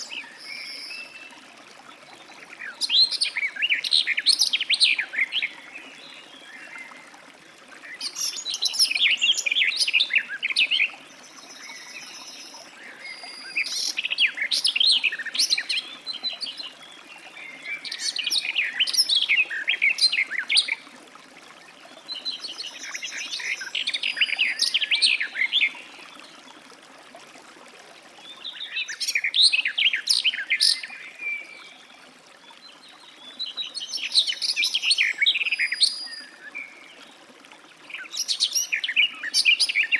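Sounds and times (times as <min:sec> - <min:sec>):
bird warbling song: 0:07.8 - 0:20.8, 0:22.1 - 0:25.9, 0:28.2 - 0:31.8, 0:32.8 - 0:36.8, 0:37.9 - 0:39.9.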